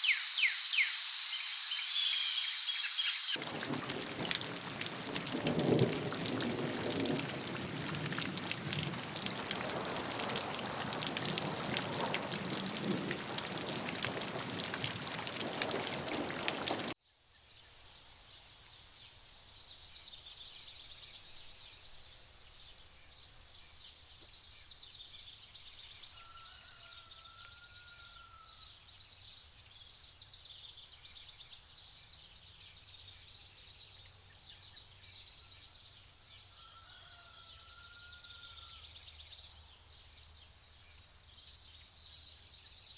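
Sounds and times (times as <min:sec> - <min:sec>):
birds chirping: 0:00.0 - 0:03.4
loud rushing hiss: 0:00.0 - 0:03.4
whistled bird call: 0:00.0 - 0:03.4.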